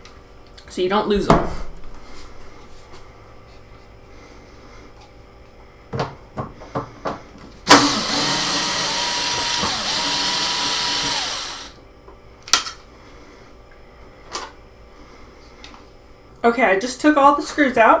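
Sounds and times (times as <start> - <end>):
power drill whining: 7.7 - 11.8.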